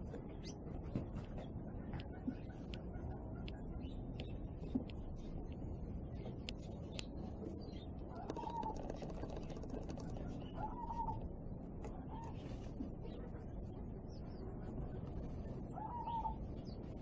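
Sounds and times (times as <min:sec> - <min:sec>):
low background noise: 0:00.0 - 0:17.0
small birds chirping: 0:00.0 - 0:17.0
dove cooing: 0:08.1 - 0:11.2, 0:15.8 - 0:16.4.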